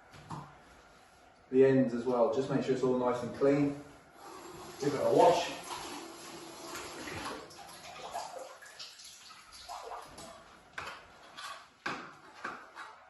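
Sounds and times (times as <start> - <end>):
tap water running: 4.2 - 11.6.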